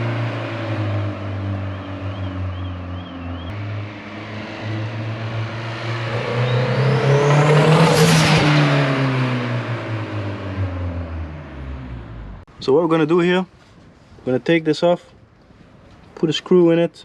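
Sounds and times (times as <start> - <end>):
car engine revving: 0.0 - 12.5.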